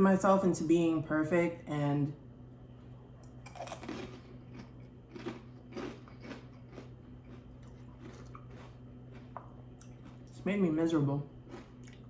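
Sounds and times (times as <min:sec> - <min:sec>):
steady low hum: 0:00.0 - 0:12.0
person chewing food: 0:03.2 - 0:10.4, 0:11.4 - 0:12.0.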